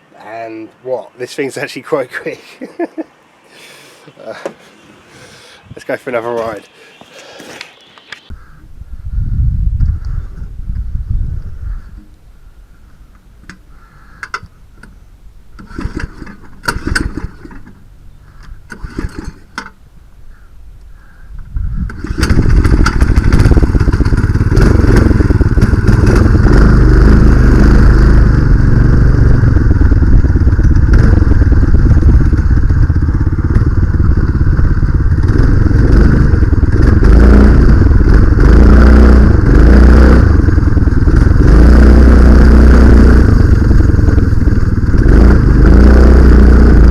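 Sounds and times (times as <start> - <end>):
minibike engine running: 21.9 - 46.9.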